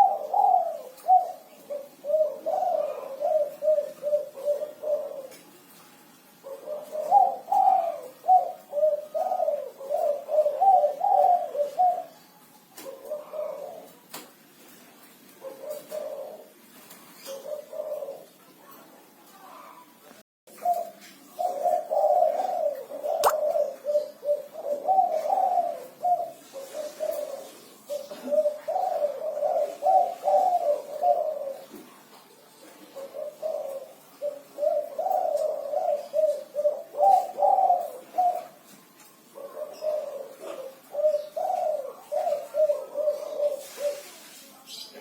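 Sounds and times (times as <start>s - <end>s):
dove cooing: 0.0s - 45.0s
sharp click: 23.2s - 23.5s.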